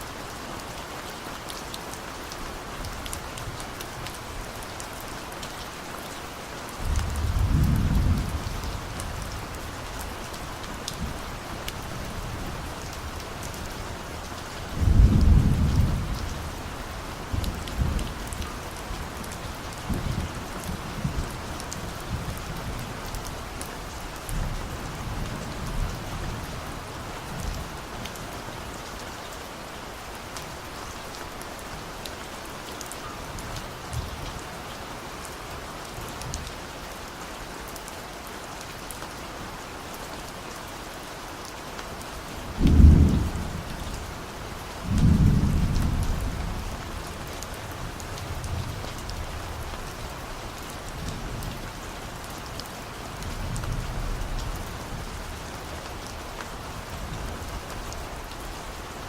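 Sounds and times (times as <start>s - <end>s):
steady rain falling: 0.0s - 59.0s
thunder rumbling: 44.8s - 46.8s.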